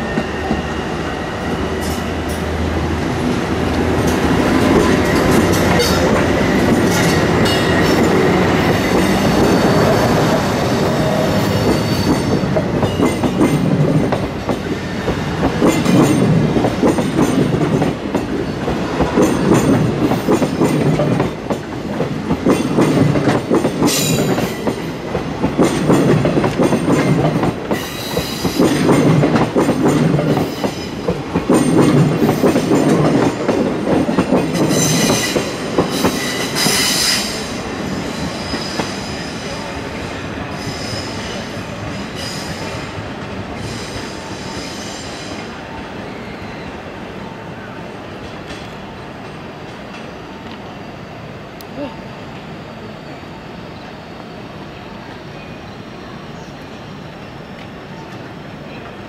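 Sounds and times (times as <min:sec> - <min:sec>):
train wheels clattering over joints: 0:11.5 - 0:37.4.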